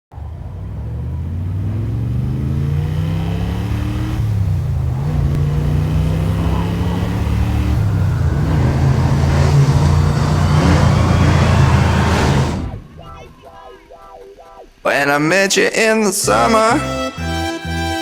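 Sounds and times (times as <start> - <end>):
vehicle engine accelerating: 0.1 - 13.5.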